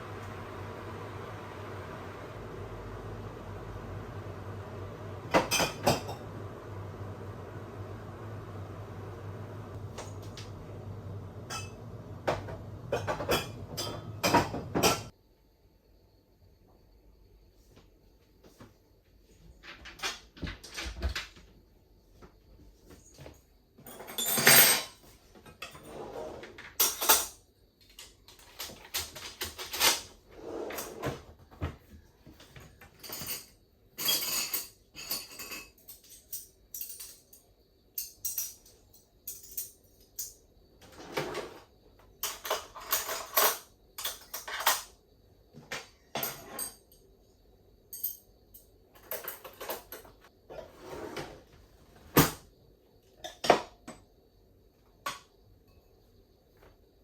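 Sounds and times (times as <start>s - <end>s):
dishes and cutlery clinking: 5.4s - 6.3s, 11.5s - 15.1s, 32.9s - 37.3s.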